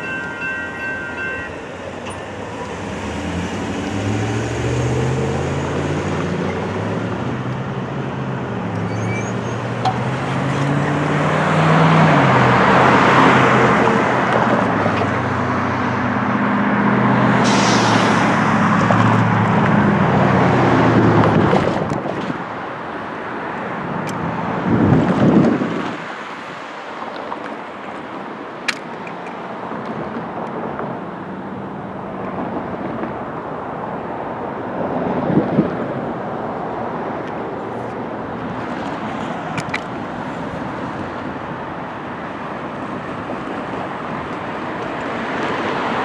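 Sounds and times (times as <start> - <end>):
cars and trucks driving past: 0.0 - 21.9.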